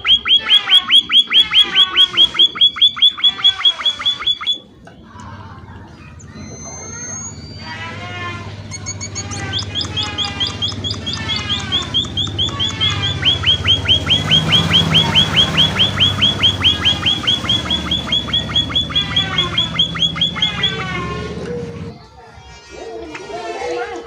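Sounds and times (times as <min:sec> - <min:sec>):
finch chirping rapidly: 0:00.0 - 0:04.6, 0:06.2 - 0:21.3.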